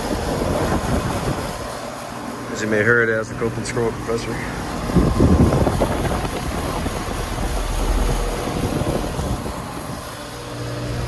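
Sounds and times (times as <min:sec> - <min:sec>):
compressor humming: 0:00.0 - 0:11.0
condenser fan rushing: 0:00.0 - 0:11.0
low rumble: 0:04.7 - 0:10.2.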